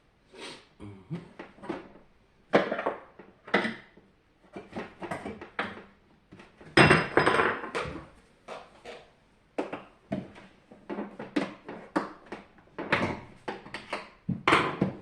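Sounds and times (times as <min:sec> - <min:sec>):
hard parts clattering and clinking: 0:06.7 - 0:08.0.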